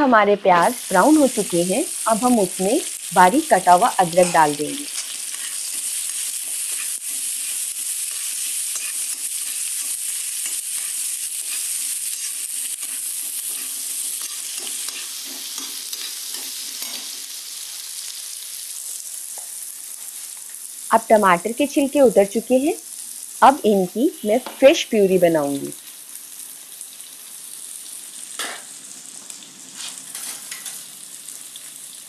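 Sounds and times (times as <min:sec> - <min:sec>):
onions sizzling in hot oil: 0:00.4 - 0:32.0
steel spatula scraping a pan: 0:04.2 - 0:17.2, 0:29.8 - 0:30.8.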